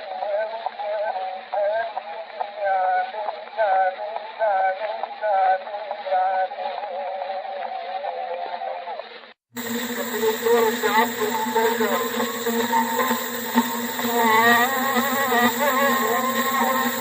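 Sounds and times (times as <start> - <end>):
faint low hum: 9.6 - 17.0
record surface hiss: 9.6 - 17.0
man singing melismatic melody: 10.1 - 17.0.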